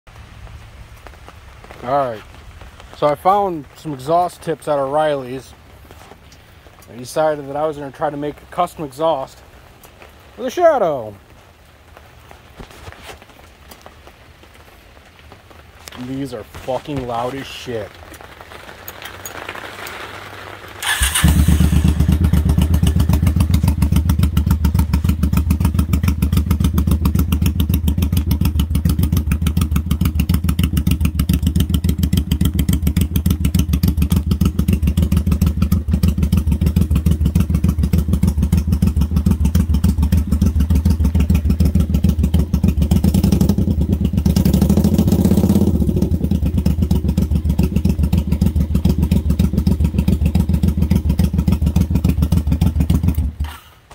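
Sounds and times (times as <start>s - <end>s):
motorcycle engine running loud: 20.8s - 53.5s.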